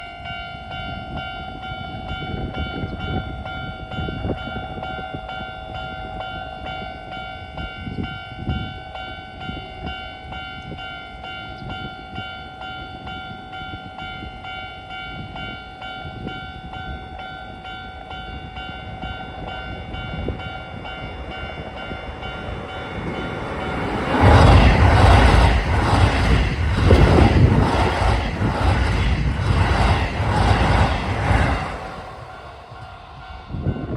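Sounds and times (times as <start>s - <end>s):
level-crossing warning bell: 0.0s - 33.9s
train roaring past: 18.6s - 33.9s
wheels clattering over rail joints: 20.7s - 32.3s
low rumble: 20.8s - 33.9s.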